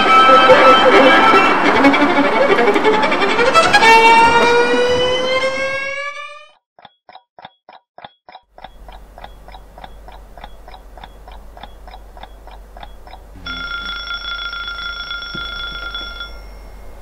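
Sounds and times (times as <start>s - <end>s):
alarm clock ringing: 0.0s - 2.3s, 8.3s - 17.0s
clock ticking: 6.8s - 17.0s.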